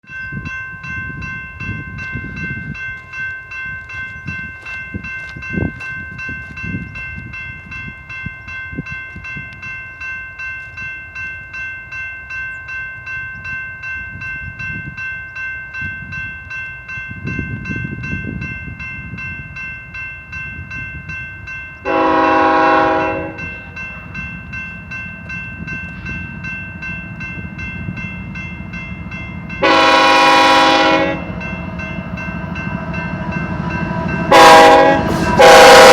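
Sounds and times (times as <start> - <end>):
train bell ringing: 0.0 - 35.9
train engines rumbling: 0.0 - 35.9
train horn blast: 21.8 - 23.9, 29.6 - 31.6, 33.0 - 35.9.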